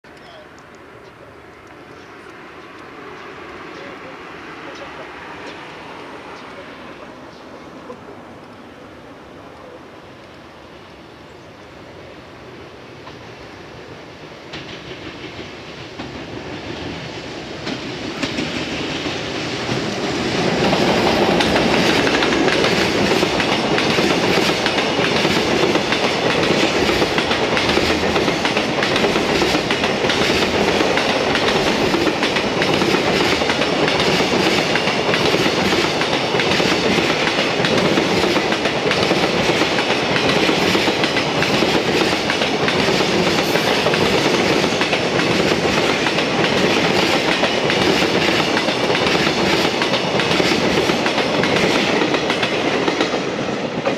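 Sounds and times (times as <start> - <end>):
train passing: 0.1 - 53.9
train wheel clatter: 14.3 - 53.9.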